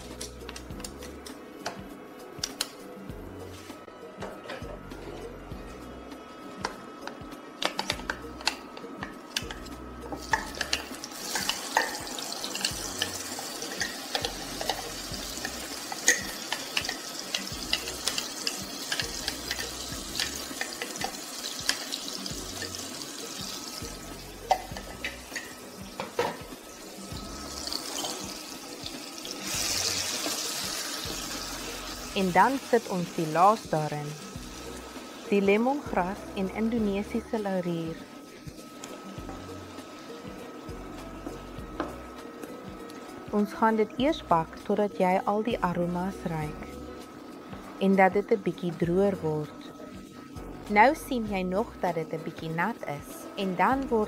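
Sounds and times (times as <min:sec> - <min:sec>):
paste sizzling in hot oil: 0:10.2 - 0:36.1.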